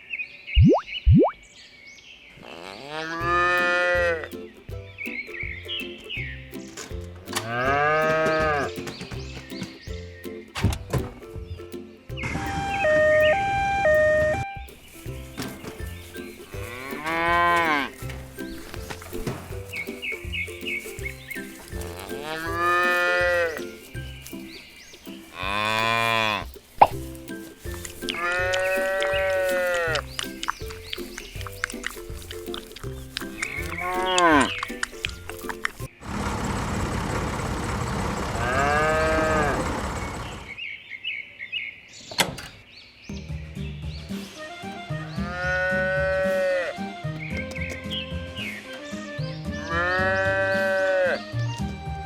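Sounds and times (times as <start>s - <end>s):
cow mooing: 2.4s - 4.2s, 7.4s - 8.7s, 16.6s - 18.0s, 21.9s - 23.6s, 25.3s - 26.5s, 28.1s - 30.0s, 33.6s - 34.6s, 38.4s - 39.7s, 45.2s - 46.8s, 49.7s - 51.3s
light background music: 3.1s - 36.0s, 43.1s - 52.0s.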